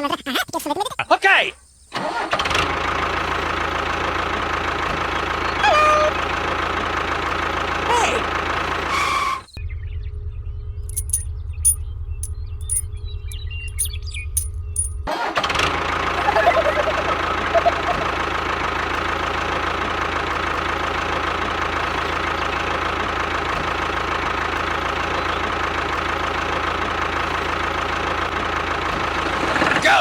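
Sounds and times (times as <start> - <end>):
engine starting and running: 1.9 - 9.4, 14.8 - 29.8.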